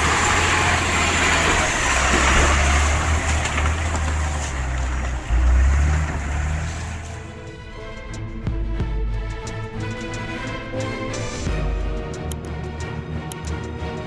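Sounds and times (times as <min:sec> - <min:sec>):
truck churning through mud and water: 0:00.0 - 0:07.5
truck engine running hard: 0:00.0 - 0:07.5.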